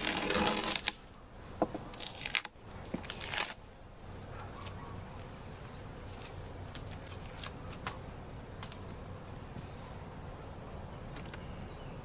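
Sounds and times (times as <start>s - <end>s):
rough scraping and crunching: 0.0s - 3.7s, 4.6s - 8.0s.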